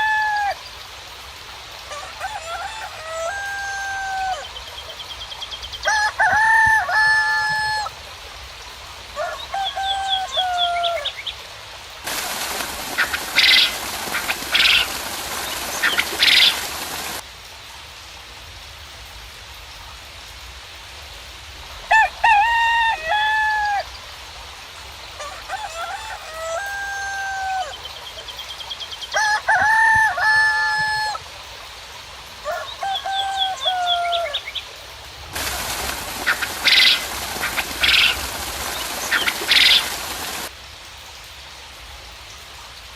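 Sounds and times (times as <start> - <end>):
roosters crowing: 0.0 - 0.6, 1.9 - 4.6, 5.8 - 7.9, 9.2 - 11.1, 12.1 - 17.2, 21.9 - 23.9, 25.2 - 27.9, 29.1 - 31.2, 32.4 - 34.5, 35.3 - 40.5
faint steady hiss: 0.0 - 42.9.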